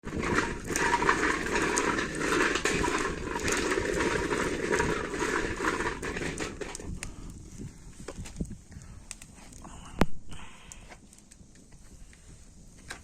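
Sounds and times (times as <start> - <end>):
fire crackling: 0.0 - 13.0
chestnuts sizzling on a griddle: 0.2 - 5.9.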